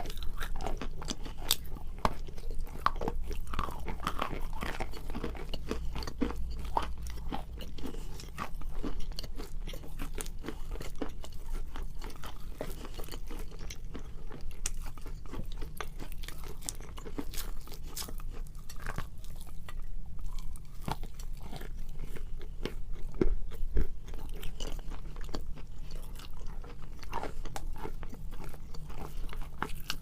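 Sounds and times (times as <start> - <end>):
chalk crunching being chewed: 0.0 - 30.0.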